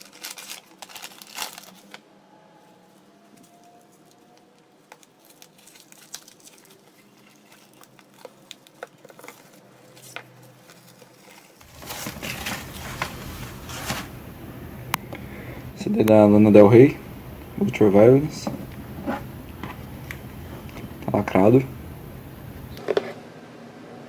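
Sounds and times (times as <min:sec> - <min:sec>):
packaging crinkling and rustling: 0:00.0 - 0:22.9.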